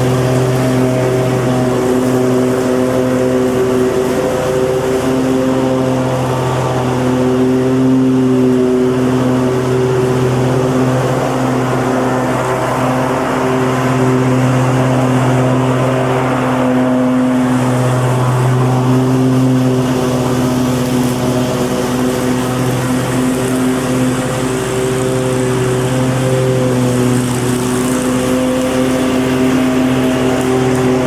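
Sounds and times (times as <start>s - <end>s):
hiss of grass cutting: 0.0s - 31.0s
lawn mower engine running: 0.0s - 31.0s.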